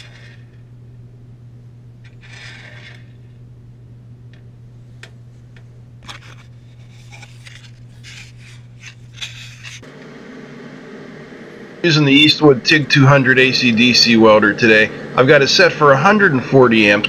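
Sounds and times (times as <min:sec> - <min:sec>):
low hum: 0:00.0 - 0:17.0
bolts scraping on metal: 0:02.1 - 0:03.2.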